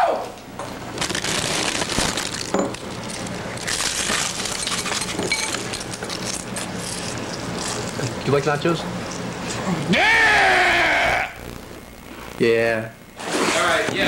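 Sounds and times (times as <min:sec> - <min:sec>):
crunchy chips being chewed: 0:00.9 - 0:08.4.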